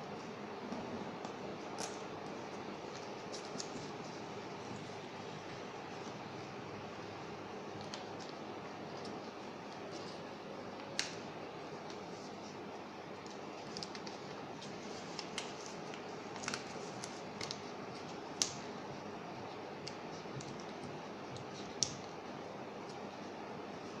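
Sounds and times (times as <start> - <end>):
paper being folded and creased: 13.2 - 18.7.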